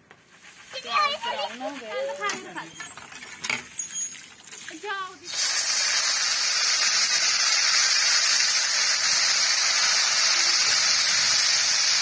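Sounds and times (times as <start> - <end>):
onions frying in hot oil: 4.3 - 12.0.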